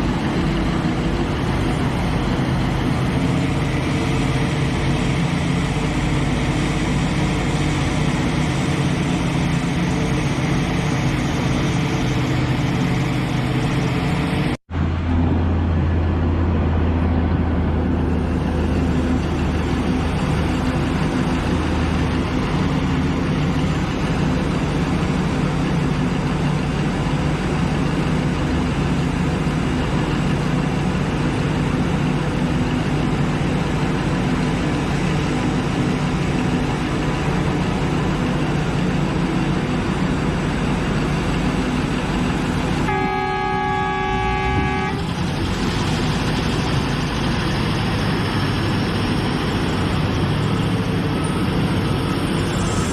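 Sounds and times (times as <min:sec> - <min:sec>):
diesel excavator engine running: 0:00.0 - 0:52.9.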